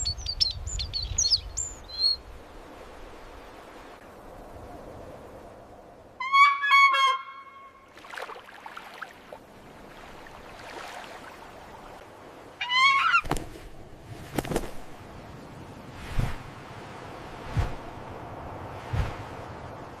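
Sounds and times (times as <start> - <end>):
large bird calling: 12.6 - 13.3.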